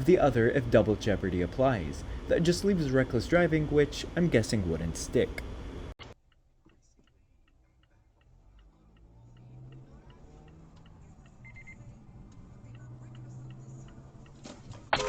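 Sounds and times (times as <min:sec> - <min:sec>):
engine and road hum: 0:00.0 - 0:06.0, 0:06.9 - 0:15.0
turn signal ticking: 0:06.2 - 0:15.0.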